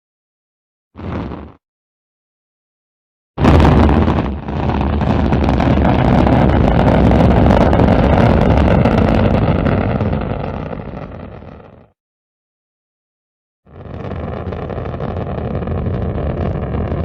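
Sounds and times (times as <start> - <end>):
rocket launch roar: 3.4 - 11.9, 13.7 - 17.0.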